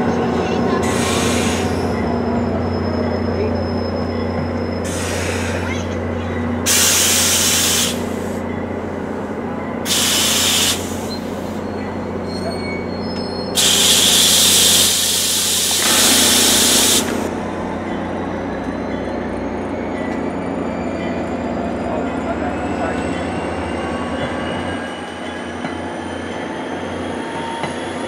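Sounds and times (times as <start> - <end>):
train hum and rumble: 0.0 - 28.0
train brake air hiss: 0.8 - 1.8, 4.9 - 5.7, 6.7 - 8.4, 9.9 - 11.6, 13.6 - 17.3.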